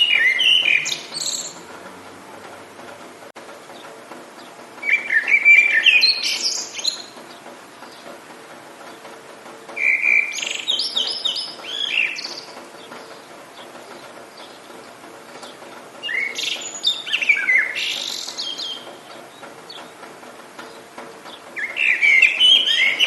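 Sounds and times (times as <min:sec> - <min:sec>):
songbird singing whistled notes: 0:00.0 - 0:01.6, 0:04.4 - 0:07.2, 0:09.8 - 0:14.6, 0:16.0 - 0:19.9, 0:21.3 - 0:23.0.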